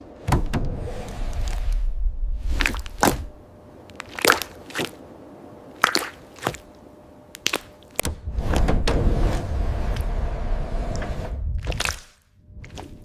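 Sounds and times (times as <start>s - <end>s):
low rumble: 0.3s - 3.8s, 8.1s - 13.0s.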